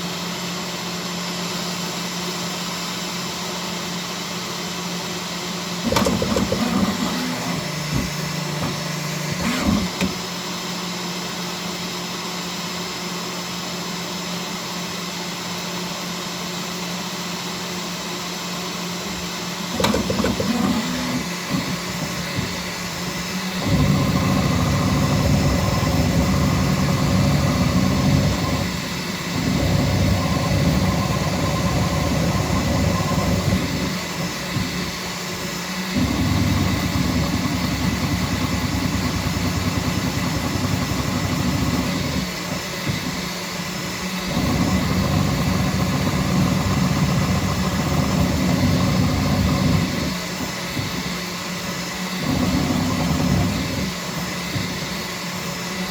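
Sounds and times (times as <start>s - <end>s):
printer motor hum: 5.6s - 10.9s, 18.9s - 55.9s
fans whirring: 5.8s - 10.4s, 19.0s - 55.9s.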